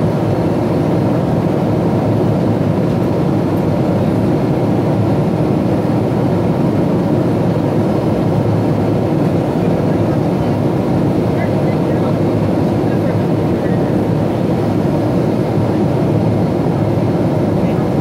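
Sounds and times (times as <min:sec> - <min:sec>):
airliner cabin rumble: 0:00.0 - 0:18.0.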